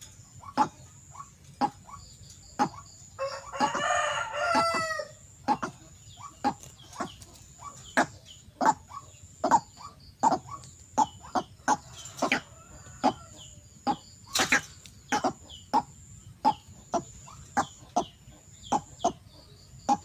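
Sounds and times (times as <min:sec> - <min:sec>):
short sharp bird calls: 0:00.0 - 0:19.2
rooster crowing: 0:03.2 - 0:05.2, 0:11.8 - 0:13.4.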